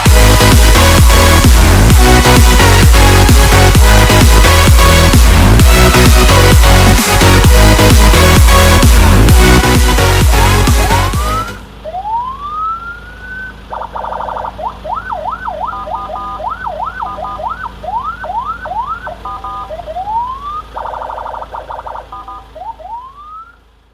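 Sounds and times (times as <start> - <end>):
electronic dance music: 0.0 - 23.5
electronic vehicle siren: 0.0 - 23.9.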